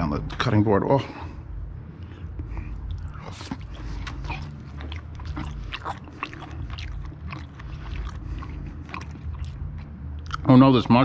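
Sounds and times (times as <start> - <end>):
person chewing food: 1.9 - 10.5.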